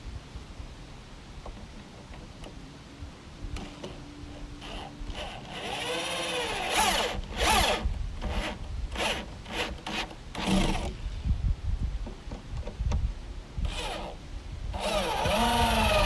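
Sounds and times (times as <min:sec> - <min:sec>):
power drill driving screws: 0:04.6 - 0:10.9, 0:13.7 - 0:14.2, 0:14.8 - 0:16.0.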